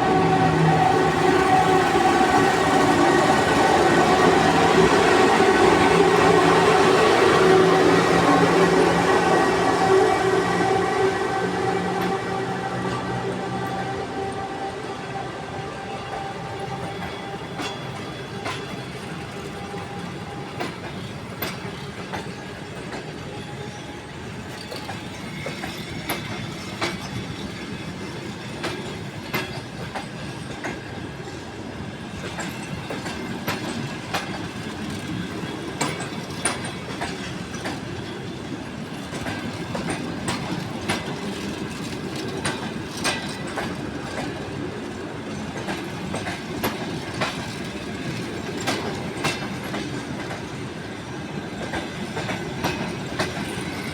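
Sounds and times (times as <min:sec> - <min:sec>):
train carriages rumbling past: 0:00.0 - 0:53.9
wheels clicking over rail joints: 0:38.8 - 0:50.6.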